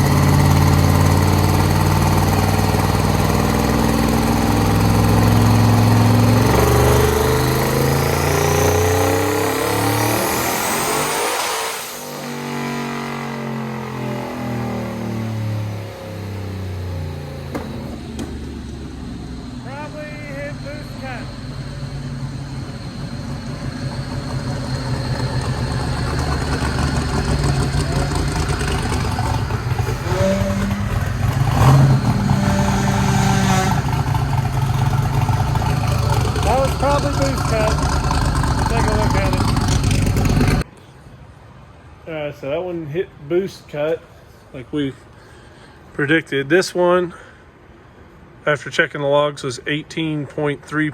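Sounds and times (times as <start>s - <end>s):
high whine climbing in pitch: 0.0s - 40.6s
car engine revving under load: 0.0s - 40.7s.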